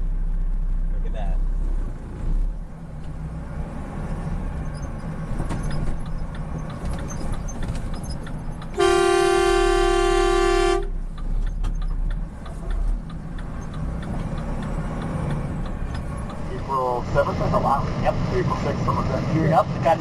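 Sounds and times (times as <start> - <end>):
road and engine rumble: 0.0 - 20.0
vehicle horn blast: 8.8 - 11.0.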